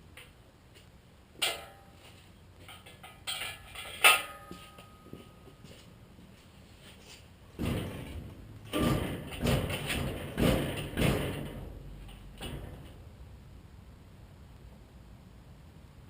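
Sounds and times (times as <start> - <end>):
loud knocks and bangs: 7.6 - 13.0.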